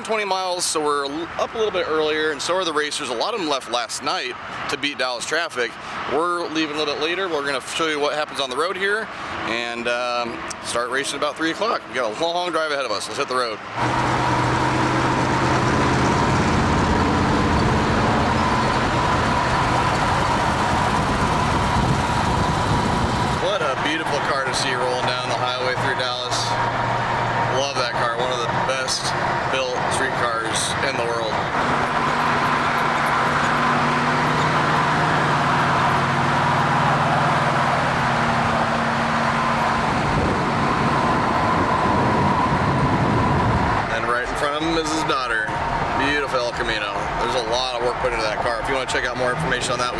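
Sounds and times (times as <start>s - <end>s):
road and wind noise: 0.0s - 49.9s
car engine drone: 13.7s - 49.9s.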